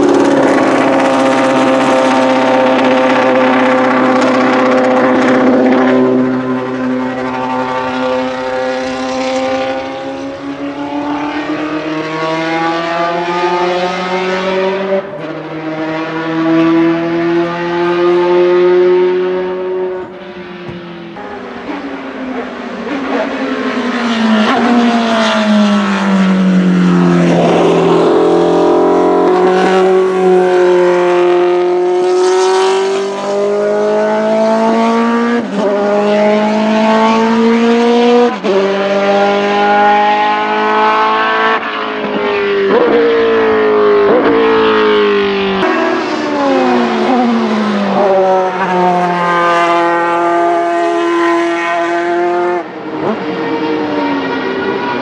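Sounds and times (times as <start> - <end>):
racing car engine accelerating: 0.0 - 55.0.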